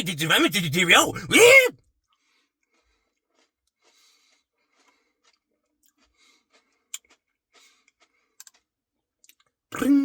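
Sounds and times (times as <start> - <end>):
person chewing: 2.2 - 10.0.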